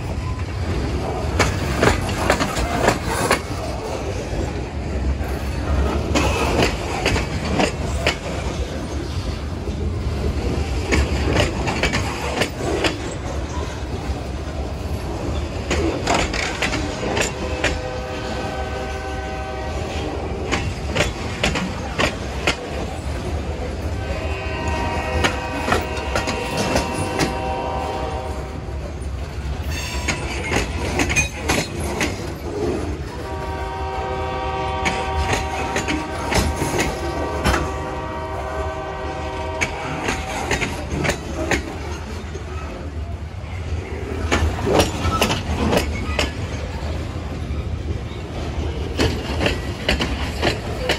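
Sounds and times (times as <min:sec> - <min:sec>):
train rumbling: 0:00.0 - 0:50.9
train wheels clicking: 0:00.0 - 0:50.9
locomotive horn blasts: 0:17.2 - 0:20.0, 0:24.0 - 0:28.6, 0:33.2 - 0:40.7.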